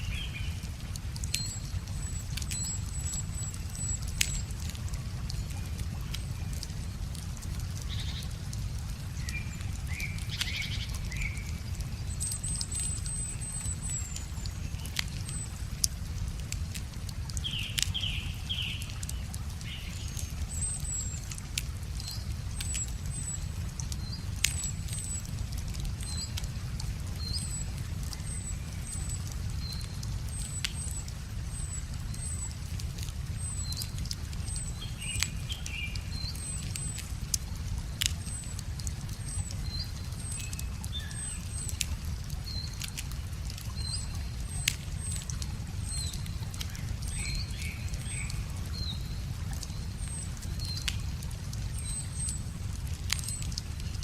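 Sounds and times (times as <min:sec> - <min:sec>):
birds singing: 0:00.0 - 0:06.8, 0:09.2 - 0:15.6, 0:17.4 - 0:21.2, 0:27.2 - 0:32.6, 0:33.3 - 0:37.1, 0:43.7 - 0:51.0
river water flowing: 0:00.0 - 0:54.0
wood fire crackling: 0:00.0 - 0:54.0.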